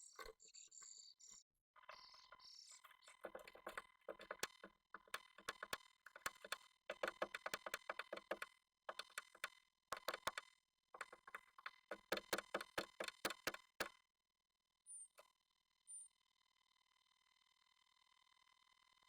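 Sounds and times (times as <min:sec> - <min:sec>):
bird tapping inside wooden nest box: 0:03.0 - 0:10.4, 0:11.0 - 0:13.9.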